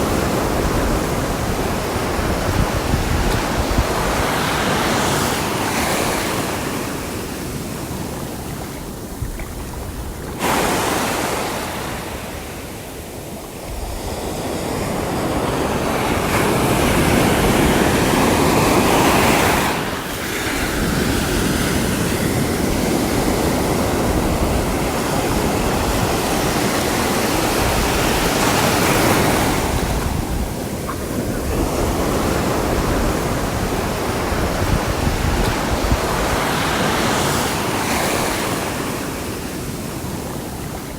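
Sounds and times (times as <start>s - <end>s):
sea waves breaking: 0.0s - 40.9s
wind rumbling on microphone: 0.0s - 40.9s.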